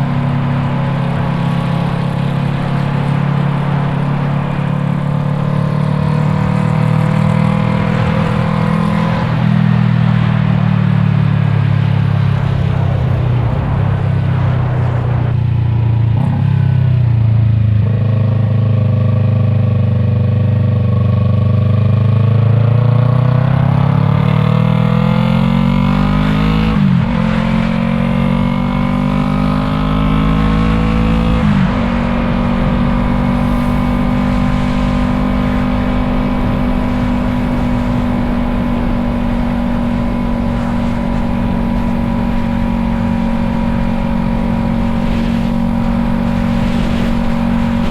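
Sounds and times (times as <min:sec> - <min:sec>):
motorcycle engine revving and shifting: 0:00.0 - 0:47.9.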